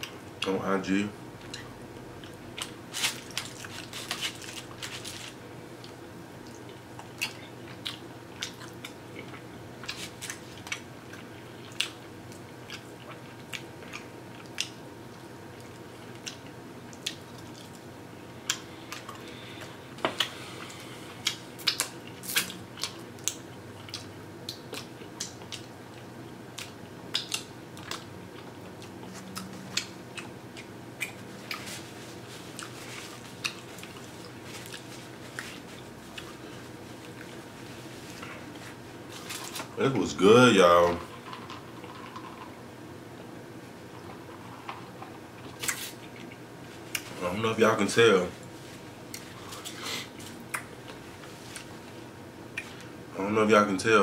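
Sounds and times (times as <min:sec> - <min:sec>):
chewing and biting: 0:20.2 - 0:31.8, 0:32.5 - 0:36.4
wet mouth smacks: 0:45.6 - 0:46.0.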